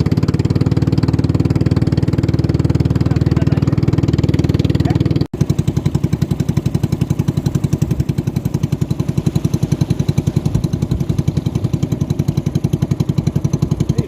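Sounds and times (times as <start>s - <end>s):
racing boat engine chugging: 0.0s - 14.0s.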